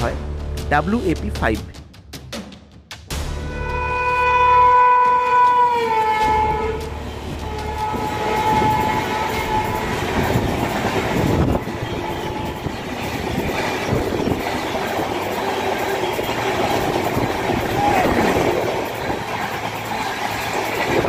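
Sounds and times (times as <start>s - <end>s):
train rushing noise: 3.1s - 21.0s
train horn tone: 3.4s - 10.4s, 11.4s - 12.9s
train wheels clattering: 5.4s - 21.0s.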